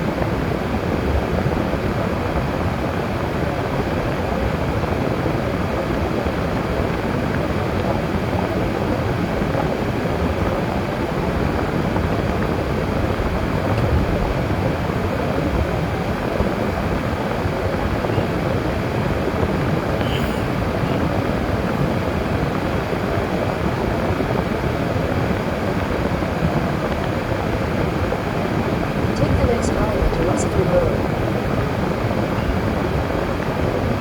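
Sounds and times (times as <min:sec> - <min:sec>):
car driving road noise: 0:09.1 - 0:29.2.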